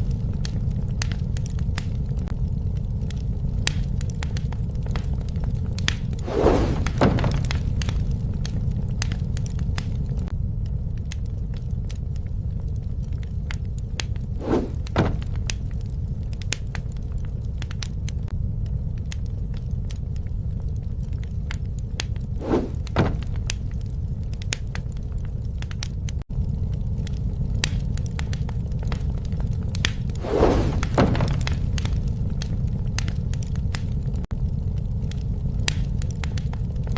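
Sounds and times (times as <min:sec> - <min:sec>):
fire crackling and popping: 0:00.0 - 0:36.9
fire rumbling: 0:00.0 - 0:36.9
dull knocks of wood: 0:06.3 - 0:07.6, 0:14.4 - 0:15.4, 0:22.4 - 0:23.4, 0:30.2 - 0:31.6.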